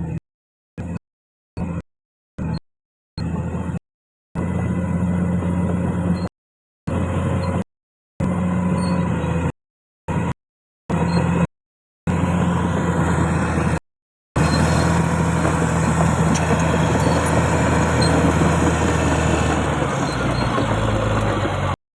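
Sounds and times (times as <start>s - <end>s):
bulldozer diesel engine running: 4.4s - 6.2s, 6.9s - 7.6s, 12.1s - 13.8s, 14.4s - 21.8s.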